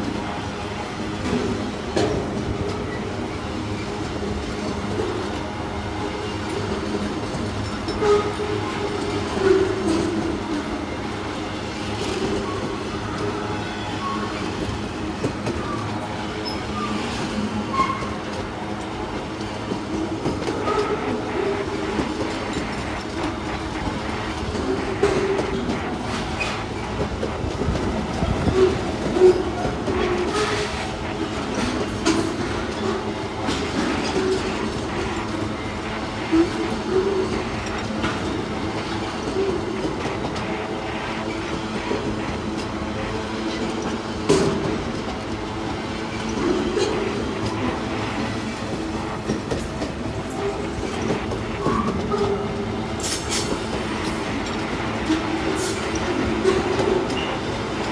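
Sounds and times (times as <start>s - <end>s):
train wheels clattering over rails: 0.0s - 57.9s
high wheel squeals: 11.8s - 18.8s.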